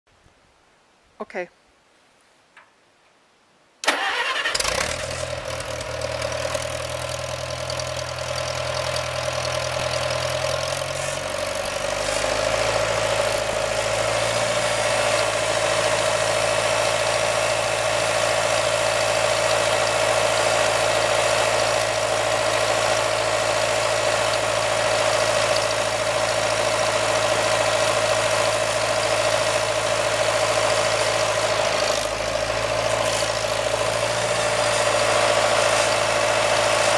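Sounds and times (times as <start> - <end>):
tractor engine starting and running: 3.8 - 36.9.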